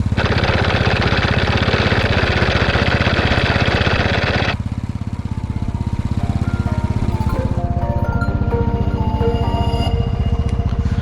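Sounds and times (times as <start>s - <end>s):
engine running with fast pulse: 0.0s - 8.8s.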